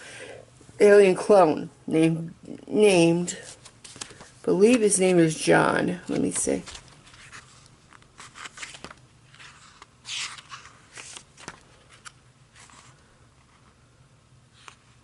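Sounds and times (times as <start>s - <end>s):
pages rustling: 3.4s - 5.2s, 6.0s - 13.8s.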